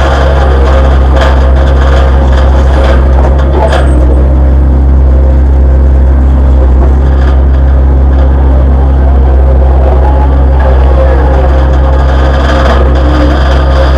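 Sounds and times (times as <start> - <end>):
excavator diesel engine droning: 0.0 - 13.9.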